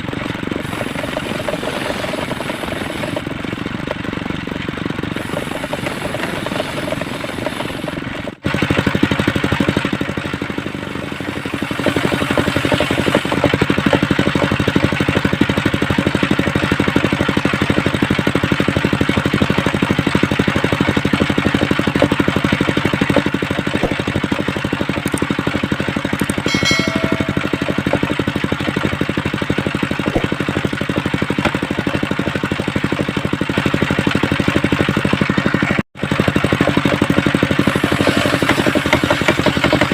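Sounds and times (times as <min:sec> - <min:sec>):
circular saw engine running: 0:00.0 - 0:39.9
short high tone: 0:26.4 - 0:28.2.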